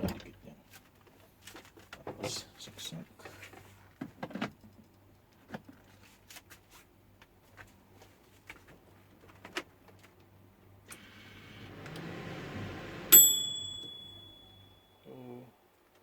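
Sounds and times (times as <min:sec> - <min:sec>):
microwave oven humming: 0:10.6 - 0:14.9
microwave bell ding: 0:13.1 - 0:15.1.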